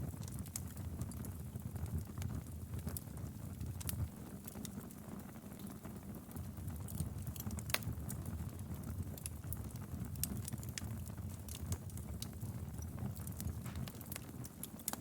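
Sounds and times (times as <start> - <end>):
wood fire crackling: 0.0 - 15.0
sharp pops of burning logs: 13.0 - 15.0.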